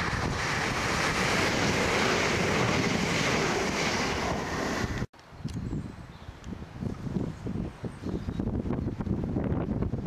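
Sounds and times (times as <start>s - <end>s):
train passing at speed: 0.0s - 5.1s.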